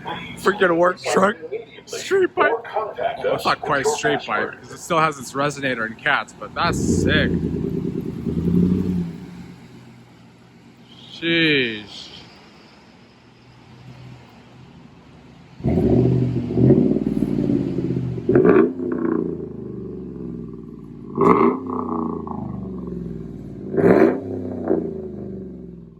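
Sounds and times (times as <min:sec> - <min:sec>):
engine throttle blips: 0:00.0 - 0:10.2
loud engine exhaust: 0:00.0 - 0:12.1, 0:15.6 - 0:25.9.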